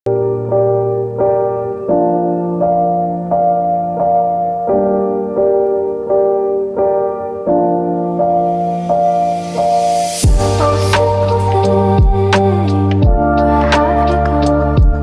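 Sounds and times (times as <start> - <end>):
slow piano chords: 0.1 - 15.0.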